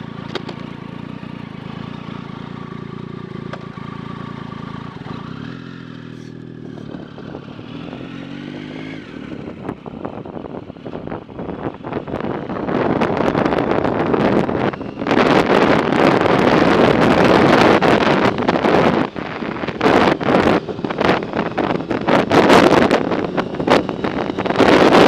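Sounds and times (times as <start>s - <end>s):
wind buffeting microphone: 6.4s - 25.0s.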